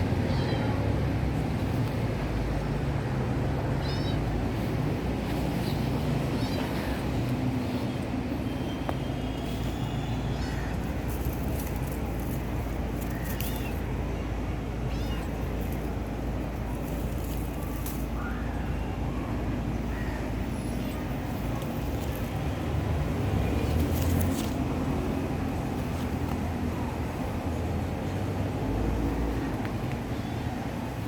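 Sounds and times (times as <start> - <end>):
cat meowing: 0.3 - 0.9, 3.8 - 4.3, 6.4 - 7.0, 14.8 - 15.7.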